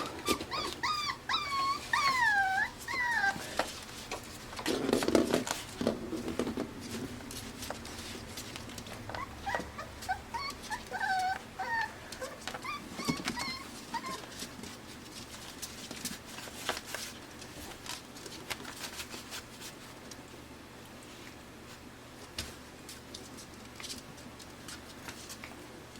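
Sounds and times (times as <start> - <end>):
puppies whimpering: 0.0 - 3.6, 9.0 - 14.5.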